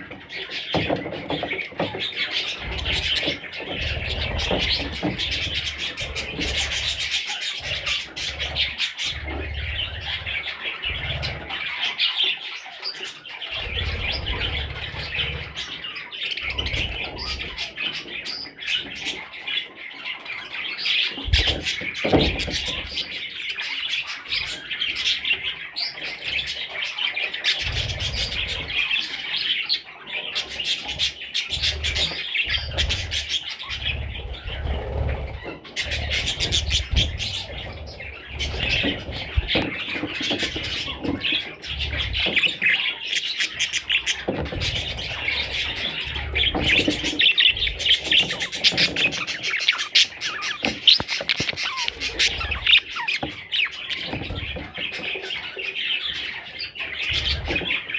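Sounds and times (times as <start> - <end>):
budgerigars chattering and chirping: 0.0 - 57.9
sharp clicks: 50.5 - 52.8.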